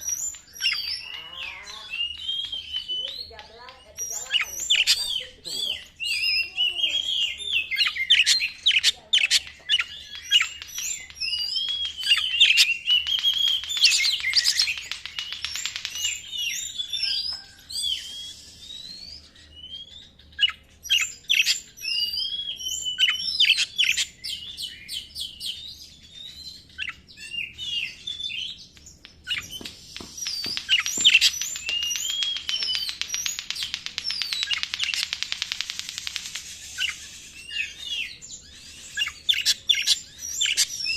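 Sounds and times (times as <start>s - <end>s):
rapid harsh rattling bird notes: 0.0s - 17.0s, 28.9s - 40.9s
bird singing whistles: 0.0s - 35.2s, 35.8s - 40.9s.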